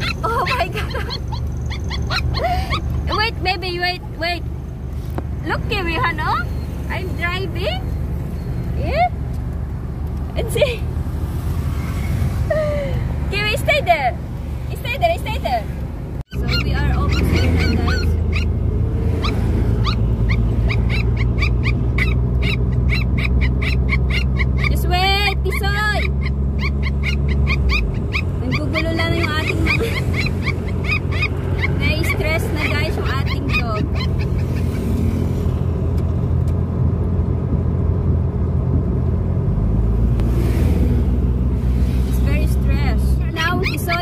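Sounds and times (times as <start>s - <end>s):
dog whining and yelping: 0.0s - 3.2s, 16.3s - 35.2s, 43.4s - 44.0s
car moving rumble: 0.0s - 44.0s.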